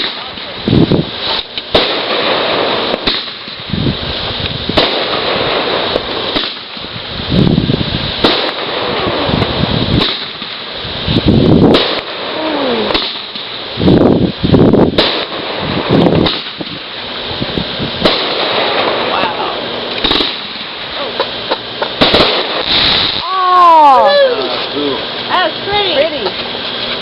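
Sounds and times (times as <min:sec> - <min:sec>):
fireworks bangs: 0:00.0 - 0:27.0
fireworks crackle: 0:00.0 - 0:27.0
falling firework whistle: 0:22.0 - 0:24.6.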